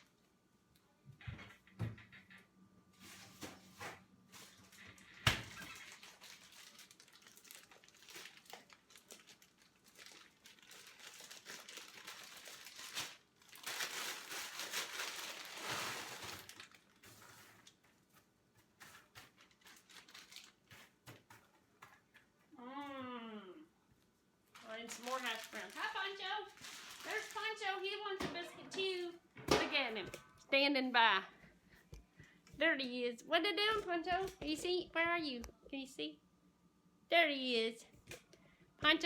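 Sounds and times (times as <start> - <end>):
plastic bag crinkling: 3.0 - 21.4, 24.5 - 29.1.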